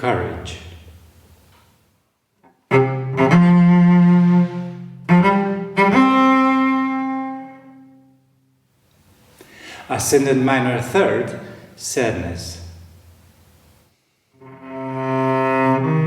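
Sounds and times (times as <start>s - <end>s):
bowed cello: 2.6s - 8.0s, 14.4s - 16.0s.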